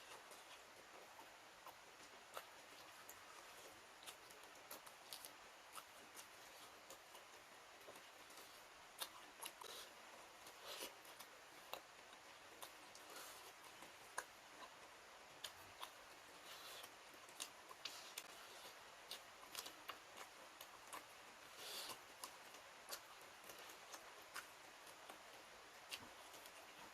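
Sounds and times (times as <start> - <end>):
faint hiss: 0.0 - 26.9
wet chewing and mouth clicks: 0.0 - 26.9.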